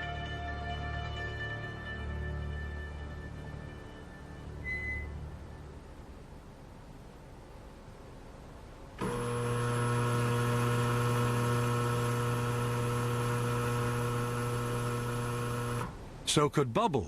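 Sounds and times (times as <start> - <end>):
water tunnel machine hum: 5.4 - 16.2.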